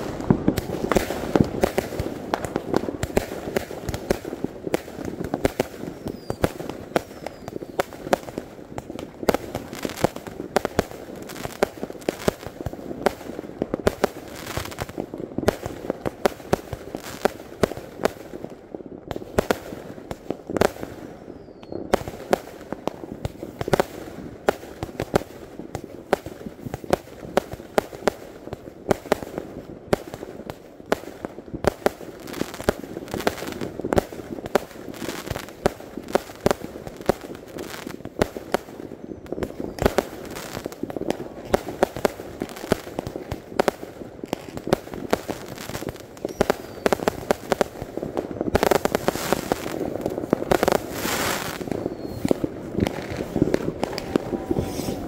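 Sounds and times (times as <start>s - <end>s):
fireworks bangs and crackles: 0.0s - 55.0s
falling firework whistles: 5.8s - 7.9s, 21.1s - 22.0s, 38.8s - 40.4s, 45.8s - 47.2s, 50.5s - 55.0s.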